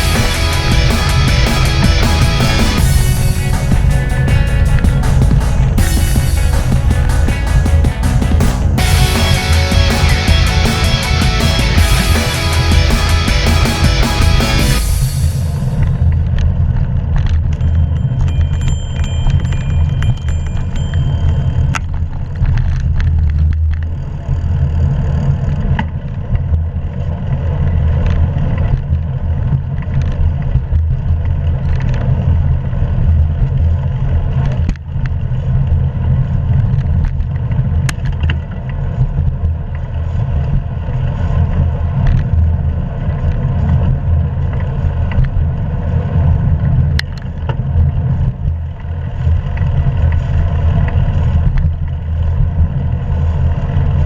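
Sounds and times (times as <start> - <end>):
wind and road noise: 14.8 - 54.0
bicycle clicks and rattles: 17.2 - 45.4.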